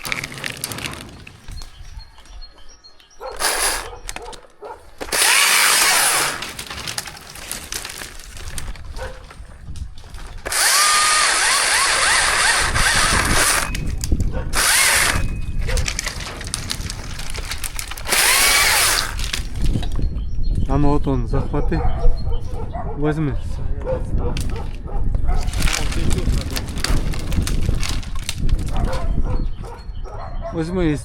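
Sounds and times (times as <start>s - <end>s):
chainsaw revving and idling: 3.4s - 3.9s, 5.1s - 6.4s, 10.5s - 13.7s, 14.6s - 15.2s, 18.0s - 19.3s.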